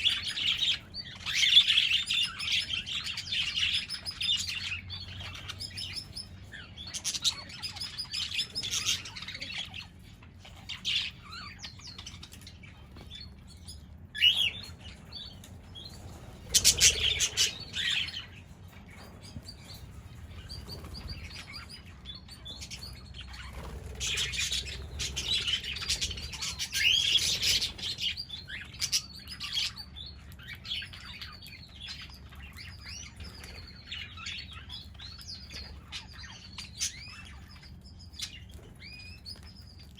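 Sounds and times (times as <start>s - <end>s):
parrots chirping and chattering: 0.0s - 39.9s
wings flapping: 23.4s - 26.6s.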